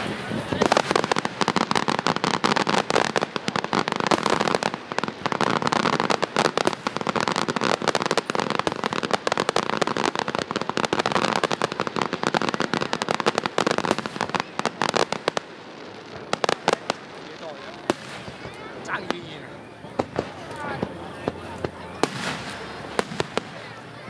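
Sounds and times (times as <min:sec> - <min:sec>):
fireworks crackling and banging: 0:00.0 - 0:24.0.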